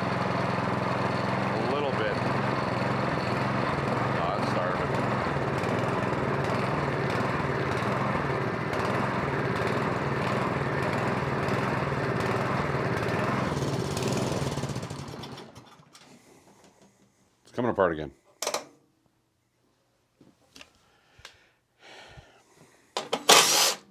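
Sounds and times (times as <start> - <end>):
snowblower engine running: 0.0 - 16.0, 23.3 - 23.8.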